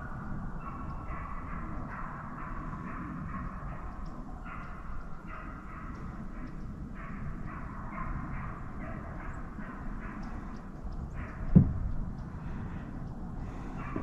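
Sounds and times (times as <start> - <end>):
distant hounds baying: 0.0 - 14.0
low rumble: 10.4 - 14.0
loud thump: 11.5 - 11.8.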